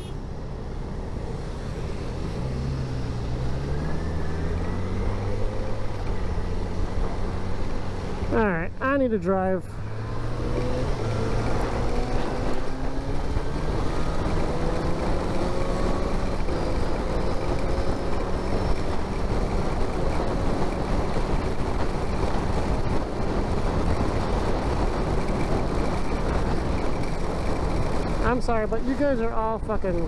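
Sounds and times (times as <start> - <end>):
motorcycle engine pulling away: 2.2 - 8.2
wind noise on microphone: 10.1 - 30.0.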